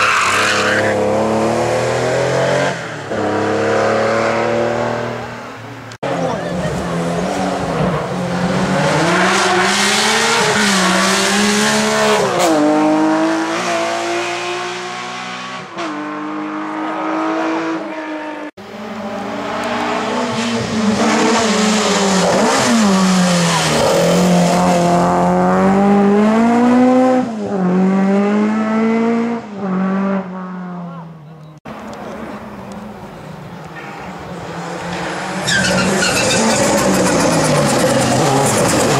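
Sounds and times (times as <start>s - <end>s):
race car engine revving: 6.0s - 30.9s, 34.4s - 38.9s.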